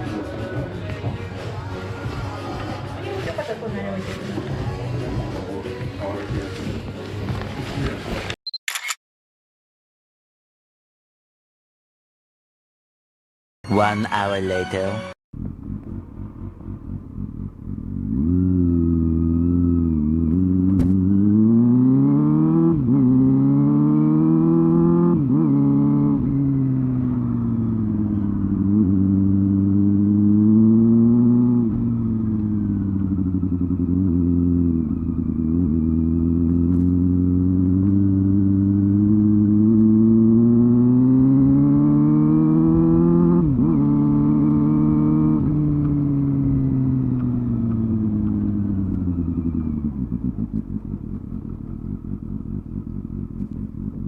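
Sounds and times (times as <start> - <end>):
motorcycle engine revving through gears: 15.4 - 54.0.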